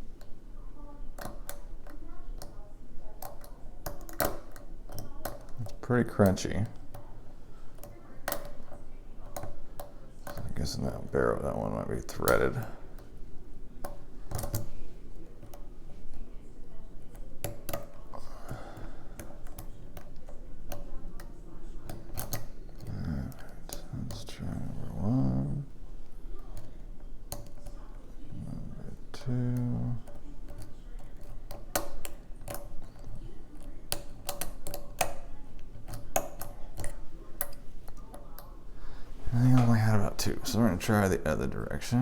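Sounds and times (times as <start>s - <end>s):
lock pick clicking on pins: 3.2s - 7.1s, 17.0s - 24.2s, 29.1s - 38.5s.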